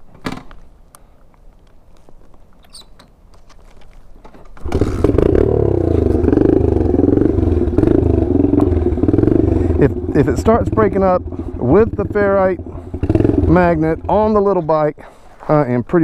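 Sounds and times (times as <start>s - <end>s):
dirt bike engine running: 4.6s - 14.7s.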